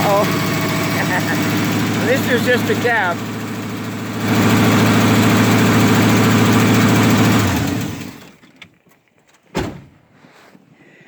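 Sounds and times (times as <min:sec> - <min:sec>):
truck engine running: 0:00.0 - 0:08.4.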